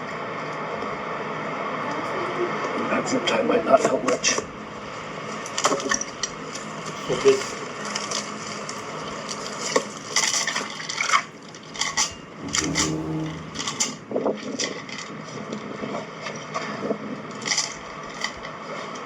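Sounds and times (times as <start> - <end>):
low hum: 12.0 - 14.0.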